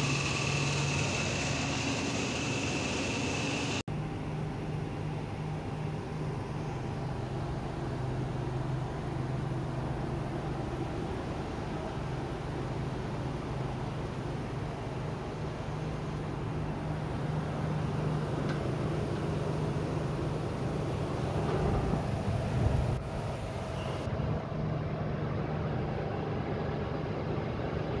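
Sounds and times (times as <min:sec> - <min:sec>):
car engine idling: 0:00.0 - 0:03.8.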